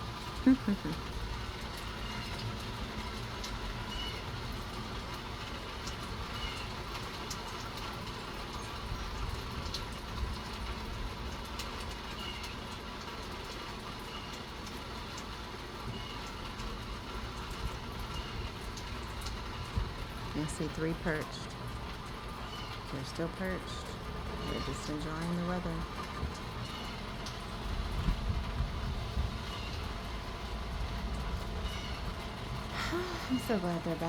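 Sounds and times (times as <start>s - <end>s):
light rain hissing: 0.0s - 34.0s
water drips: 0.0s - 34.0s.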